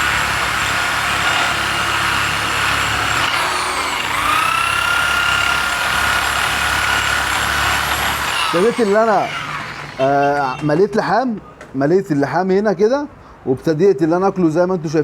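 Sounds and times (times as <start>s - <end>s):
electric grinder grinding metal: 0.0s - 10.7s.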